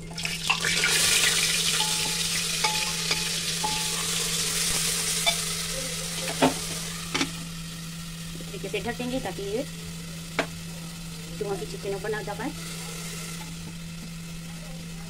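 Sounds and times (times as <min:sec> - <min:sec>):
paste sizzling in hot oil: 0:00.0 - 0:15.0
metal spoon clinking against pot: 0:01.7 - 0:04.4, 0:05.2 - 0:05.6.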